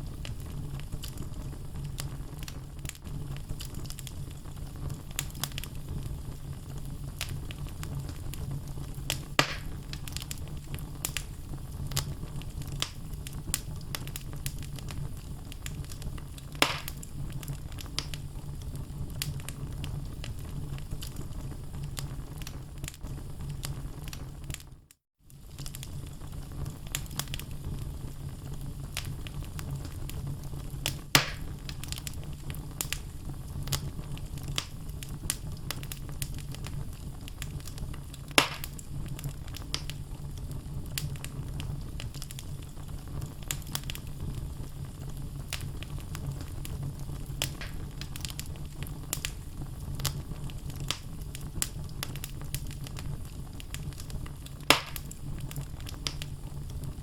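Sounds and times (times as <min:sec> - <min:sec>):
fire burning in fireplace: 0:00.0 - 0:57.0
logs popping: 0:09.1 - 0:10.3, 0:16.5 - 0:17.0, 0:31.1 - 0:31.8, 0:38.3 - 0:38.8, 0:47.4 - 0:48.5, 0:54.6 - 0:55.2.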